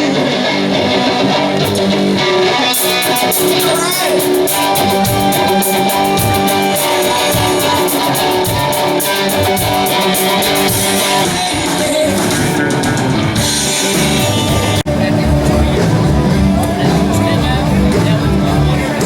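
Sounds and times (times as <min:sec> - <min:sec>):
rock music with singing: 0:00.0 - 0:19.0.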